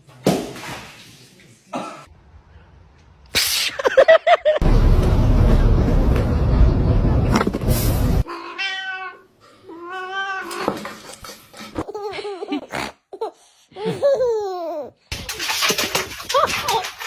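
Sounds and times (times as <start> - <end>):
cat meowing: 8.2 - 9.2.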